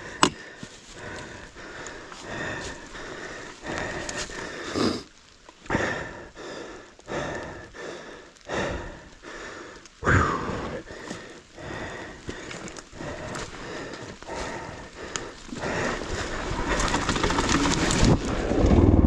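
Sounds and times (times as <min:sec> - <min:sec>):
person breathing hard: 0:00.0 - 0:18.1.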